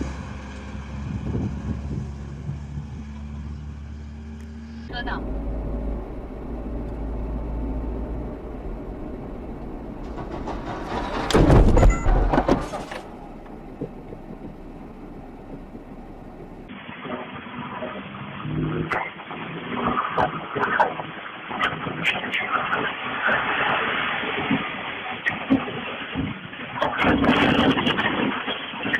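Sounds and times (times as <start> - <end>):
vehicle engine and road noise: 0.0 - 20.5
knocks and rattles: 10.0 - 14.6.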